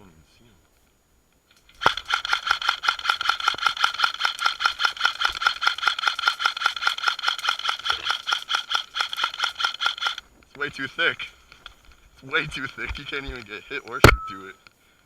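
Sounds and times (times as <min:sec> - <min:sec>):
airsoft gun full-auto fire: 0:01.8 - 0:10.2
gun motor whine: 0:01.8 - 0:10.2.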